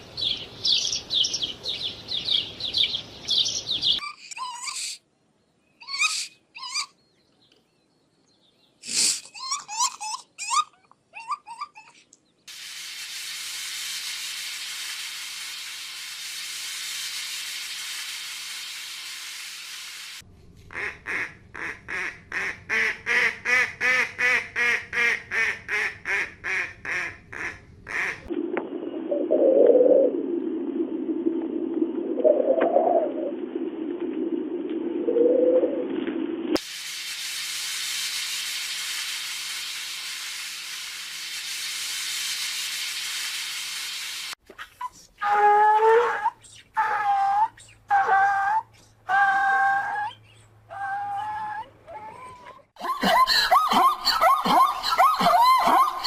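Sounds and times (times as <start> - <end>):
steady hiss: 12.5 - 20.2, 36.6 - 44.4.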